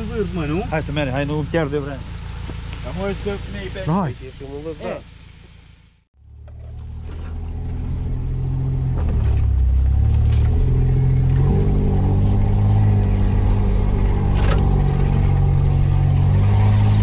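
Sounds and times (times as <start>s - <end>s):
car engine pulling uphill: 0.0s - 17.0s.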